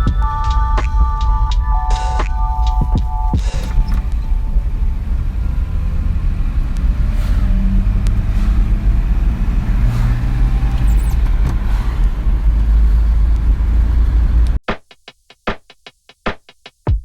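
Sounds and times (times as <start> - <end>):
car engine running: 2.8 - 14.6.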